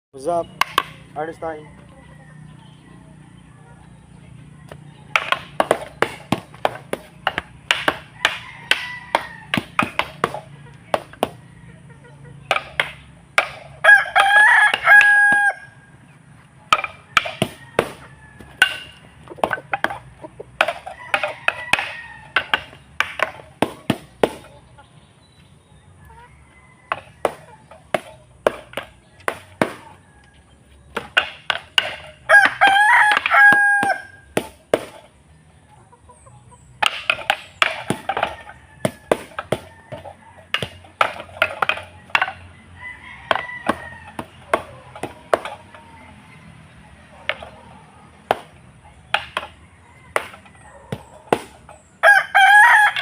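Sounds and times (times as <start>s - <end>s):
sharp knocks or chops: 0.5s - 1.1s, 5.2s - 11.4s
rooster crowing: 8.0s - 9.9s, 13.8s - 15.9s, 17.0s - 19.0s, 20.8s - 22.7s, 26.1s - 27.6s, 29.7s - 30.6s, 32.2s - 34.2s, 37.8s - 40.8s, 41.8s - 44.8s, 52.0s - 53.0s.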